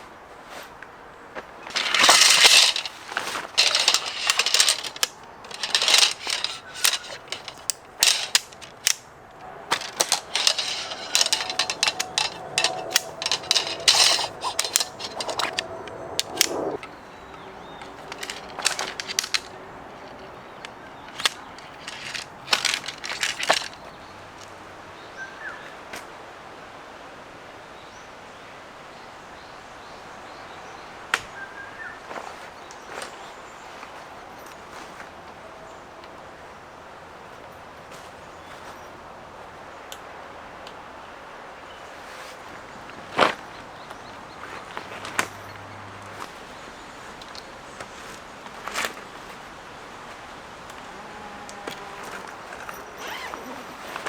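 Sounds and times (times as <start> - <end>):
rustling: 0.0 - 24.5, 41.7 - 54.0
clattering and knocking: 1.7 - 9.0, 9.7 - 16.9, 17.8 - 19.5, 21.1 - 23.8.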